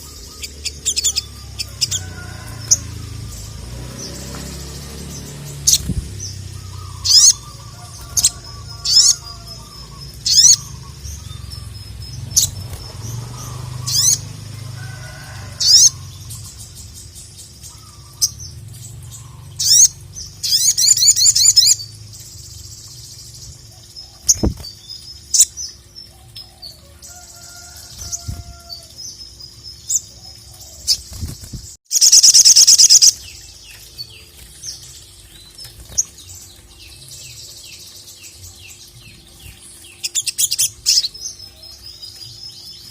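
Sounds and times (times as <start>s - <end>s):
bird singing high calls: 0.0s - 31.3s, 31.9s - 42.9s
bird trilling: 6.6s - 11.7s.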